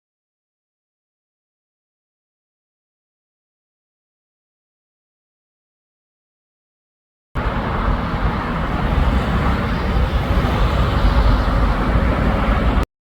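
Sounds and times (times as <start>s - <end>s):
heavy traffic rumble: 7.4s - 12.9s.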